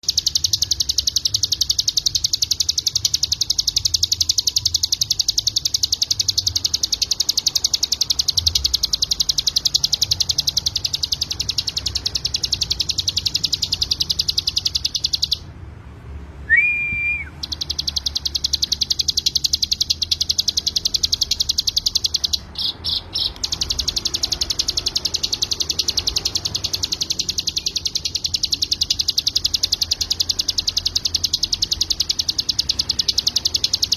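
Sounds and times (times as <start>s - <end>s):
bird high trill: 0.0s - 15.6s, 16.4s - 33.9s
short whistle: 16.4s - 17.6s.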